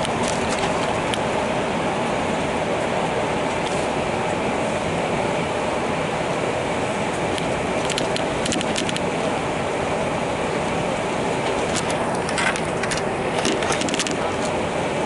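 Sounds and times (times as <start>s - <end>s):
train rumble inside carriage: 0.0s - 15.0s
light rattling clicks: 7.4s - 9.1s, 11.6s - 14.2s.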